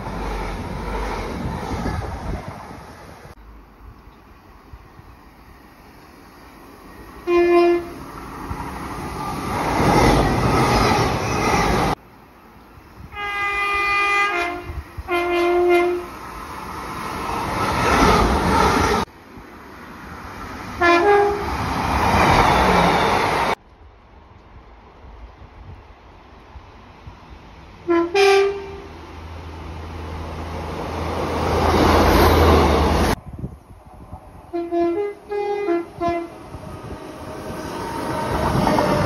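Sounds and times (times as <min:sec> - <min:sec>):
passing train rumble: 0:00.0 - 0:39.0
train horn blasts: 0:07.2 - 0:08.0, 0:13.1 - 0:16.1, 0:20.8 - 0:21.6, 0:27.8 - 0:28.9, 0:34.5 - 0:36.4.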